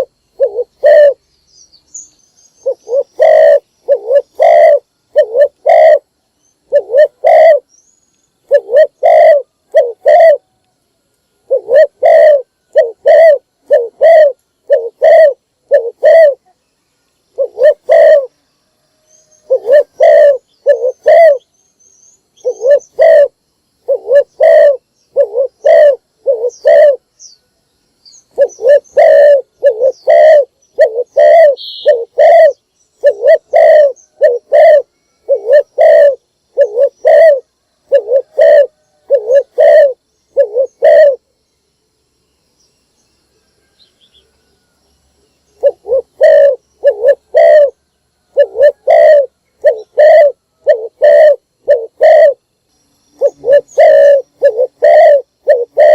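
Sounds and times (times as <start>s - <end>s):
dove cooing: 0.0s - 1.2s, 2.6s - 7.7s, 8.4s - 10.6s, 11.4s - 16.5s, 17.3s - 18.4s, 19.4s - 21.5s, 22.4s - 27.1s, 28.3s - 41.3s, 45.6s - 52.4s, 53.2s - 55.9s.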